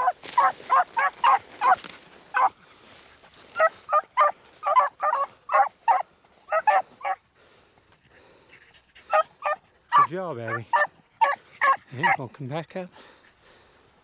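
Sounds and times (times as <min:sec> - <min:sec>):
dogs barking rapidly: 0:00.0 - 0:02.6, 0:03.5 - 0:07.2, 0:08.9 - 0:12.3.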